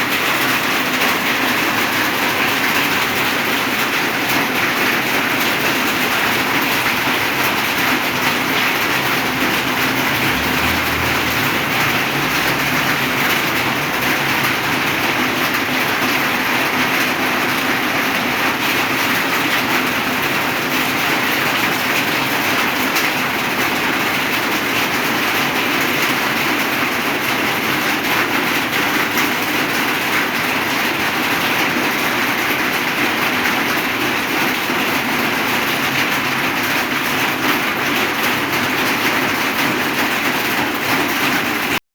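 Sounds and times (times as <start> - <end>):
heavy rain pouring: 0.0 - 41.8.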